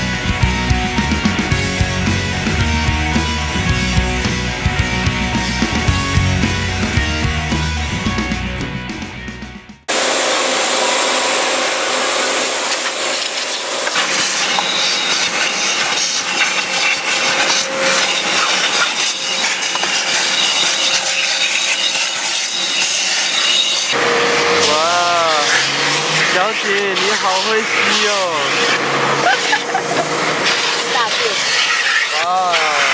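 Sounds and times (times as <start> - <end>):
car wash rushing and scrubbing: 9.9 - 32.9.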